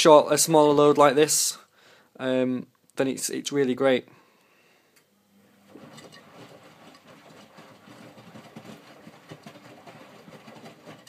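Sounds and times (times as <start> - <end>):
washing machine tumbling: 5.5 - 11.0.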